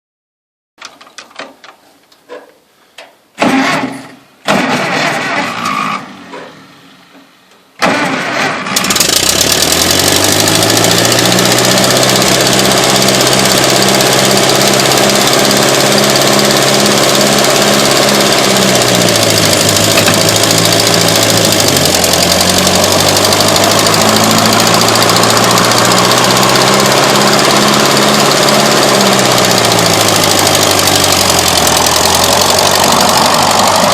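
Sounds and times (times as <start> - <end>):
tractor engine cranking: 3.4 - 6.2, 7.8 - 33.9
tractor engine running: 7.8 - 33.9.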